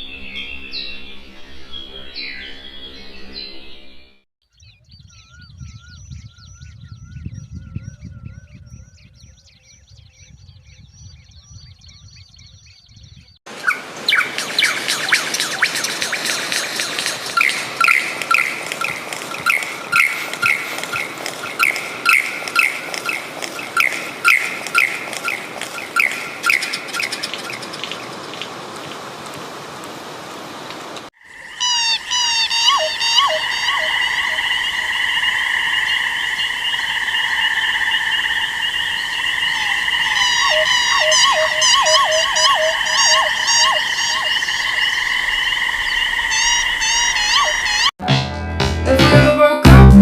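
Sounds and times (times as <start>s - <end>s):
quick chirping calls: 13.5s - 28.6s, 31.2s - 47.9s
high-pitched animal chorus: 31.2s - 47.9s
short high animal chirps: 31.6s - 34.4s, 39.6s - 44.8s.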